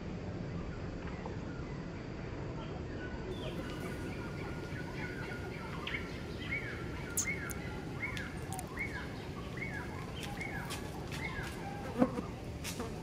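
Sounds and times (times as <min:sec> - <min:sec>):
background hiss: 0:00.0 - 0:13.0
bird calling: 0:03.3 - 0:12.3.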